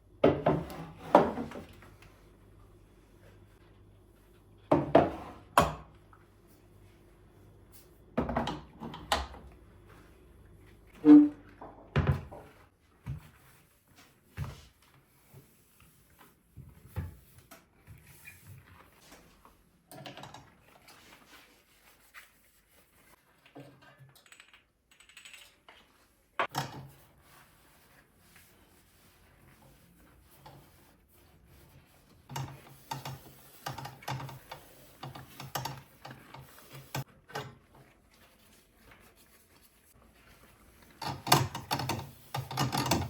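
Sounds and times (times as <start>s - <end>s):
household objects knocking and clunking: 4.7s - 5.9s, 8.2s - 8.8s.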